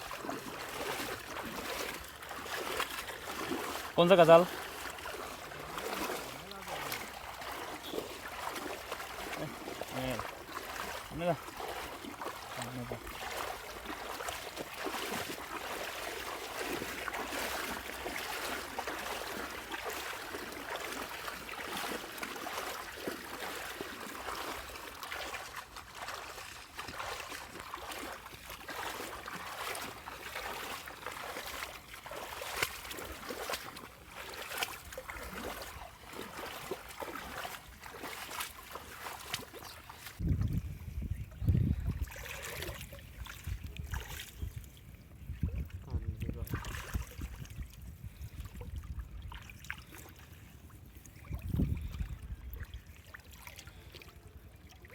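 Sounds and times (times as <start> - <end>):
rushing trickling water: 0.0 - 40.2
small sharp ticks and splashes: 0.0 - 40.6, 41.4 - 54.9.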